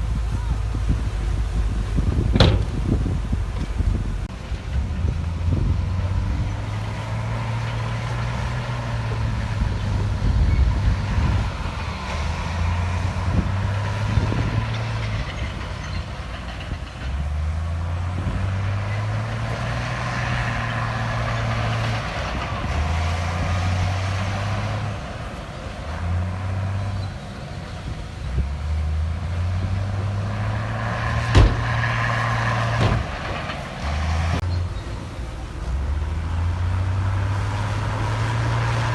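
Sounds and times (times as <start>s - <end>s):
diesel machinery engine drone: 0.0s - 38.9s
sharp knock: 2.4s - 2.8s, 31.3s - 31.7s.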